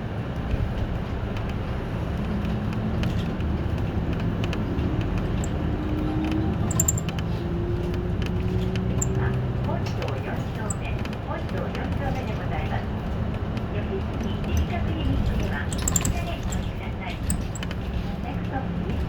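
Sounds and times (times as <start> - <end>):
bus engine and road rumble: 0.0 - 19.0
light rattles: 6.6 - 7.4, 14.6 - 18.2.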